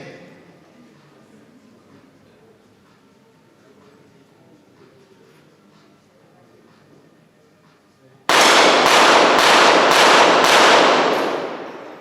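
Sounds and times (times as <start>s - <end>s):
pistol shots ringing: 8.3s - 12.0s.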